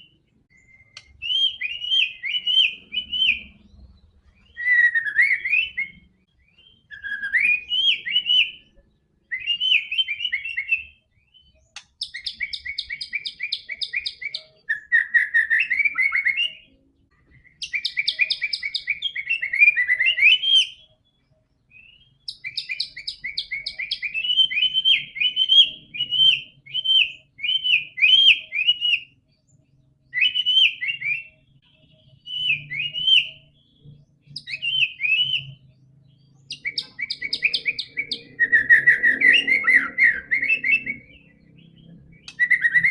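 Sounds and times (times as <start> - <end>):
songbird whistling and trilling: 0.0 - 42.9.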